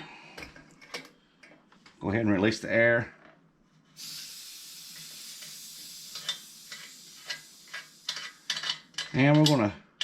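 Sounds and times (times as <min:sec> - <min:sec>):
pressurized air hissing: 0:04.0 - 0:08.6.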